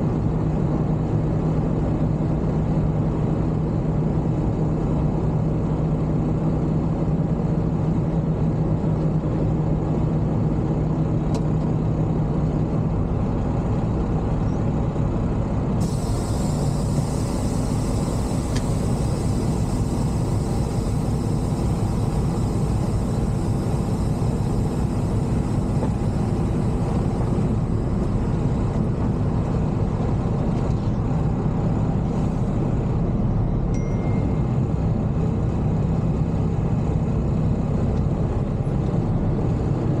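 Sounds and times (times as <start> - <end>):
truck diesel engine droning: 0.0 - 40.0.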